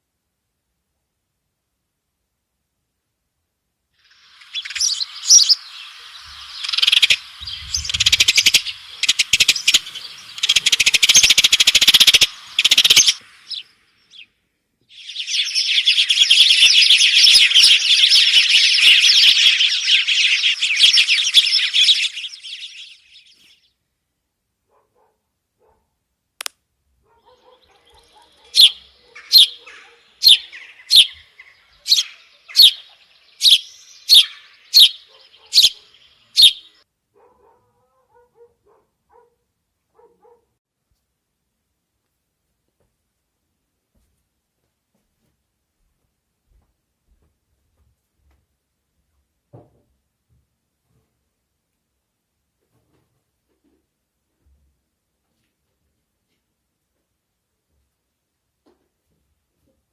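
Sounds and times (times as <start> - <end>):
small birds chirping: 4.0 - 23.8, 27.1 - 36.8.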